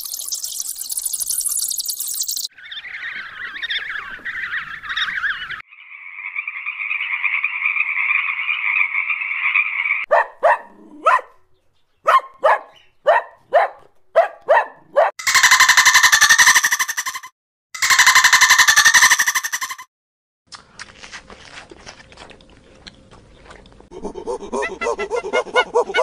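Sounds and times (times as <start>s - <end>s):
puppy yapping: 10.1s - 11.4s, 12.0s - 15.1s, 24.6s - 26.0s
frog trilling croak: 15.2s - 17.2s, 17.8s - 19.8s
flying foxes chattering: 15.2s - 19.8s.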